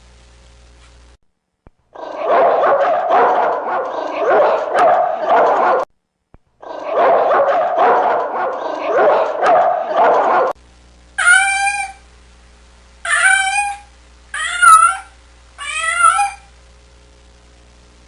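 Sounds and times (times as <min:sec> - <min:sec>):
dense animal noise: 0:01.9 - 0:05.8, 0:06.6 - 0:10.6, 0:14.4 - 0:16.5
cat meowing: 0:15.6 - 0:16.4.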